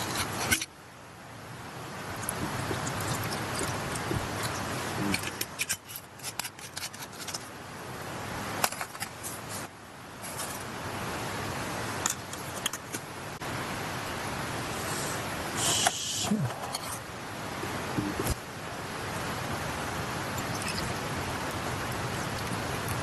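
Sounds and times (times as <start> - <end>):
mountain stream rushing: 0.0 - 23.0
small utensils clinking: 2.2 - 7.4.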